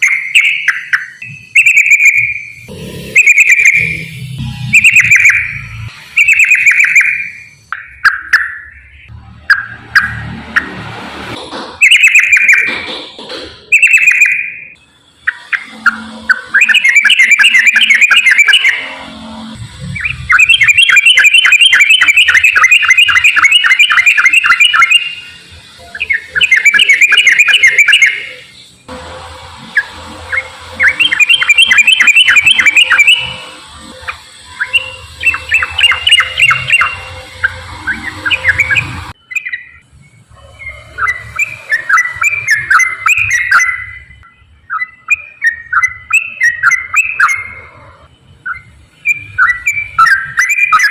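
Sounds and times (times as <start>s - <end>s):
bulbul singing chattering phrases: 13.7s - 28.7s, 29.7s - 39.8s.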